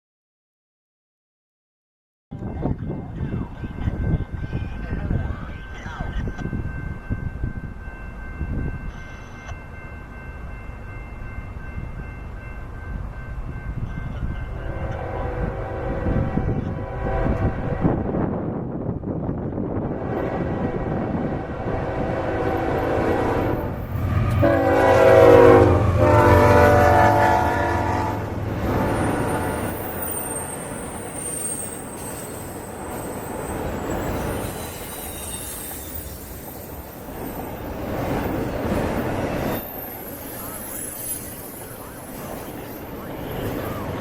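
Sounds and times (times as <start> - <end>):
train air horn blasts: 14.6 - 18.2, 20.0 - 30.2
train wheel squeal: 28.9 - 38.5, 39.4 - 44.0.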